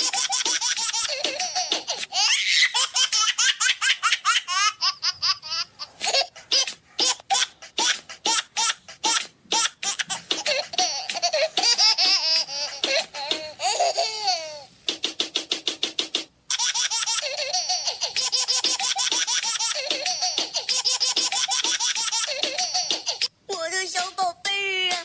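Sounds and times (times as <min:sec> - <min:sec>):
high-pitched laugh track: 0:00.0 - 0:14.7, 0:16.5 - 0:25.0.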